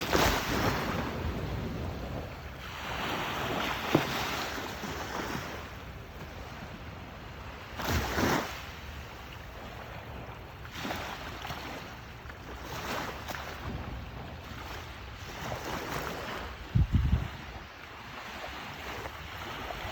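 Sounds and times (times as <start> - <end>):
waves washing in: 0.0 - 19.9
wind on microphone: 0.0 - 19.9.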